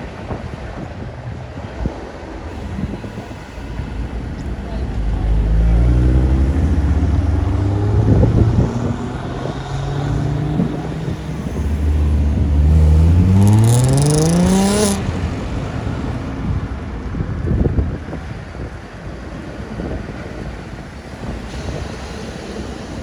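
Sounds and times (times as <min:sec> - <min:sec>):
car engine revving: 0:02.5 - 0:17.0.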